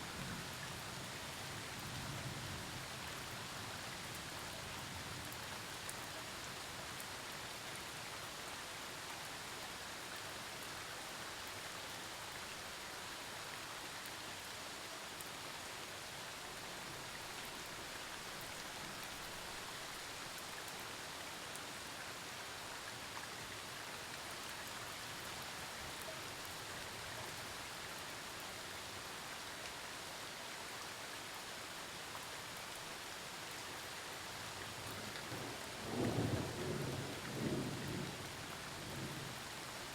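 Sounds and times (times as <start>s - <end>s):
heavy rain falling: 32.7s - 39.9s.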